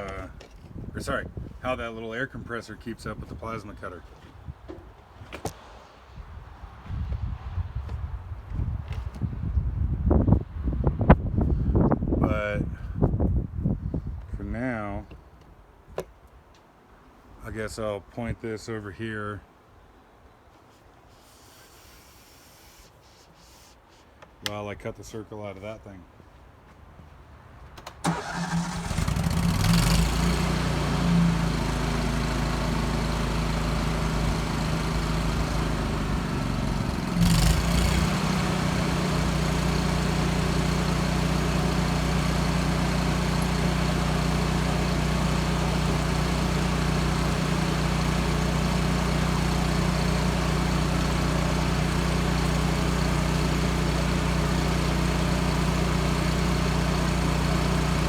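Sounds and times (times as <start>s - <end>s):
generator engine running: 28.1s - 58.0s.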